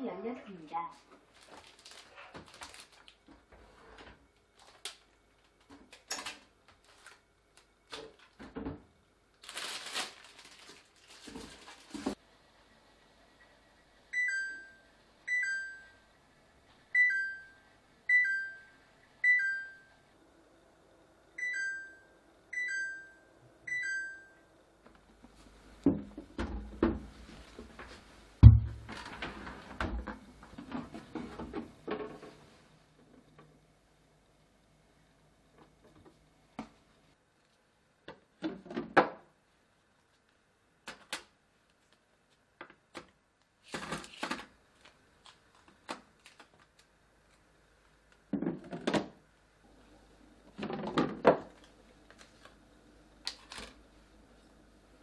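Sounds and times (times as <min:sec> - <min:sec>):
loud thump: 0:28.4 - 0:29.0
plastic containers clicking and knocking: 0:50.5 - 0:51.7.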